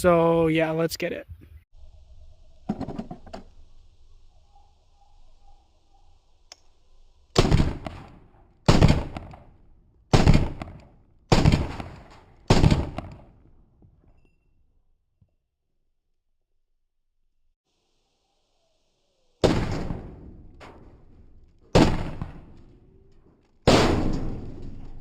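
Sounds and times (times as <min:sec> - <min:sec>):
pistol shots: 0:07.4 - 0:09.5, 0:10.1 - 0:13.3, 0:21.7 - 0:22.6.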